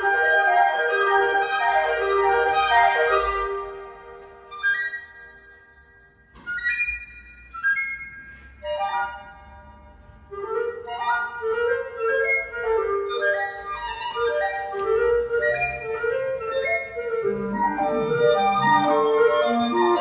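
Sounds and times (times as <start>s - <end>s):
clarinets playing: 0.0s - 5.7s, 10.4s - 20.0s
flute: 0.0s - 20.0s.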